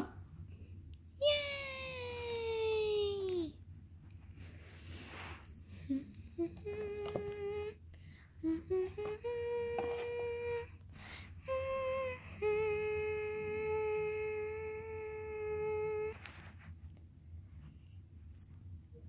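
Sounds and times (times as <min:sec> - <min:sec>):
person humming a tune: 0:05.7 - 0:16.3.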